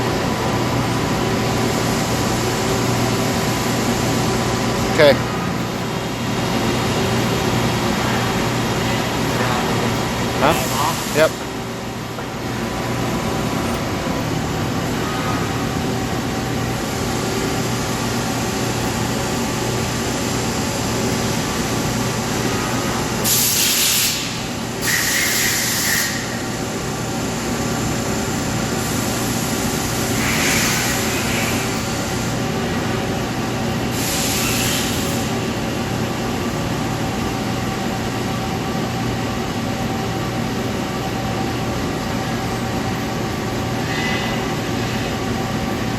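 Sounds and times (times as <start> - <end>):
lathe mechanical hum: 0.0 - 45.9
short bursts of hiss: 23.2 - 26.4.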